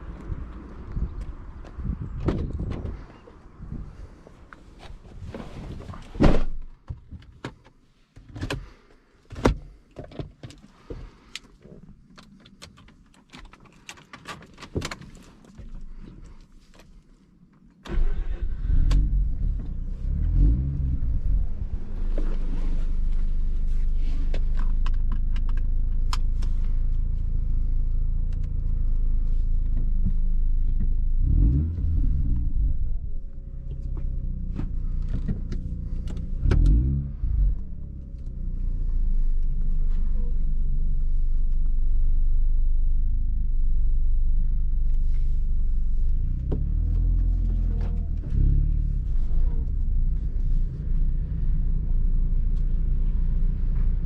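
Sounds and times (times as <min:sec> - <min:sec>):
rotary engine starting and revving: 0:17.9 - 0:23.1, 0:31.1 - 0:40.2, 0:45.9 - 0:54.0.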